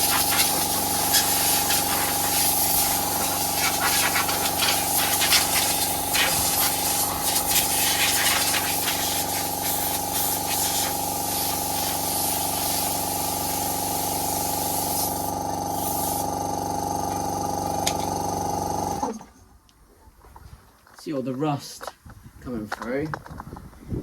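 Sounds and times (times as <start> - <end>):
water jet hissing: 0.0 - 19.2
pressure washer motor drone: 0.0 - 19.3.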